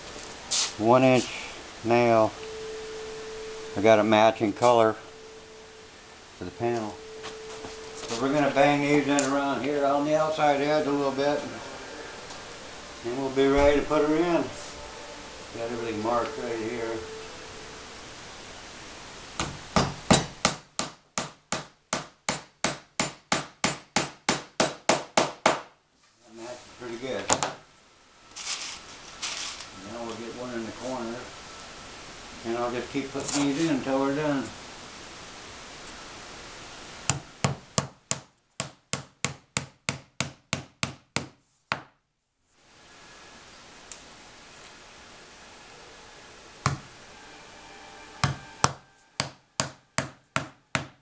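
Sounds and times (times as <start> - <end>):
hammer striking nails: 19.4 - 25.7, 37.1 - 41.9, 48.2 - 51.0.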